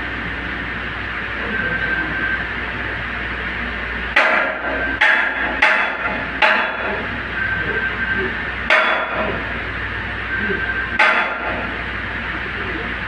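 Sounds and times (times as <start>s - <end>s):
steady low hum: 0.0s - 13.0s
hammer striking metal: 4.2s - 7.0s, 8.7s - 9.4s, 11.0s - 11.8s.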